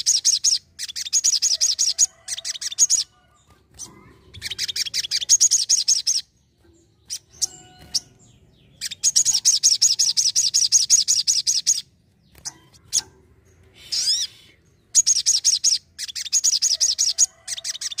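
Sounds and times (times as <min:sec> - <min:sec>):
bird chips: 0:07.0 - 0:18.0
sweeping bird call: 0:07.0 - 0:18.0
bird singing high notes: 0:07.1 - 0:10.2.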